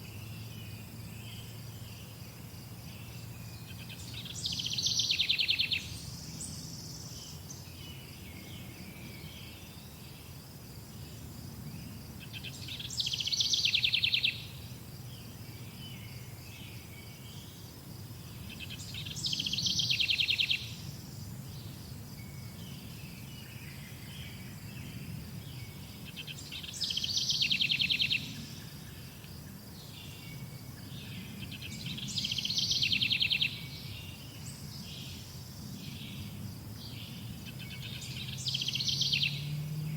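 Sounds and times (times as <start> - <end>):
songbird trilling: 3.8 - 5.9.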